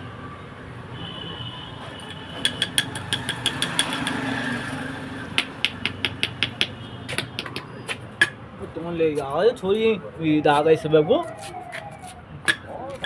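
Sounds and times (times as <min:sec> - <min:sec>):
hammer tapping on metal: 0:02.1 - 0:04.3, 0:05.4 - 0:08.4.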